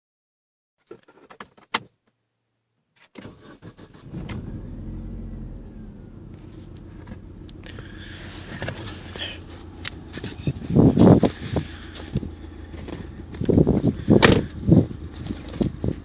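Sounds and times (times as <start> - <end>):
car engine starting and idling: 3.2 - 16.0.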